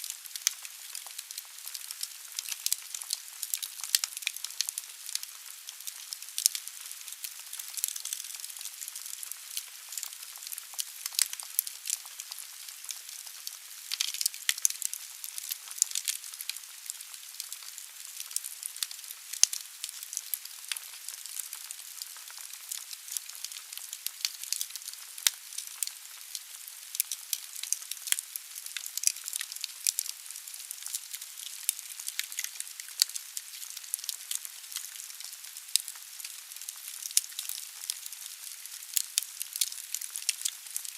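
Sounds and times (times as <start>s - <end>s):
wood fire crackling and popping: 0.0s - 26.3s, 26.9s - 40.9s.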